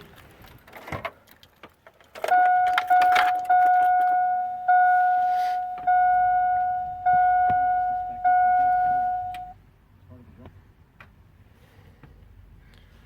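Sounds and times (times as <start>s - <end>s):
truck dashboard warning chime: 2.3s - 9.6s.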